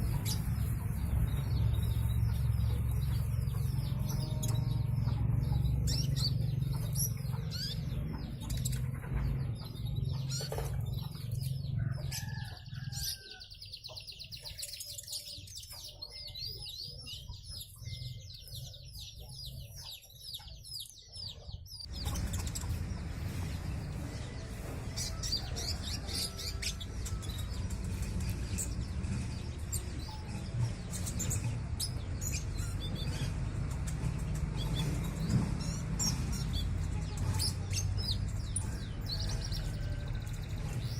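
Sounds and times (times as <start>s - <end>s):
steady low hum: 21.9s - 40.9s.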